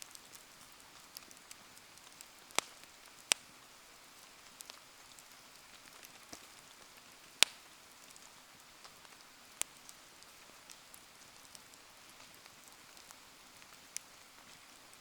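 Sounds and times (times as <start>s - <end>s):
fire crackling: 0.0s - 15.0s
rain patter: 0.0s - 15.0s
loud fire pops: 1.1s - 3.5s.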